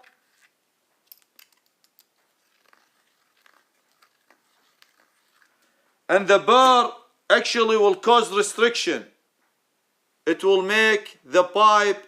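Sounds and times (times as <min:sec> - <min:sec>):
faint clicks and scrapes: 0:00.0 - 0:06.0.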